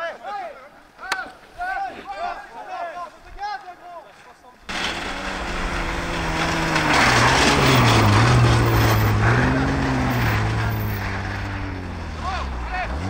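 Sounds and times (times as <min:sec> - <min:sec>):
tyre noise on snow: 0:04.4 - 0:13.0
rally car engine running hard: 0:04.7 - 0:13.0.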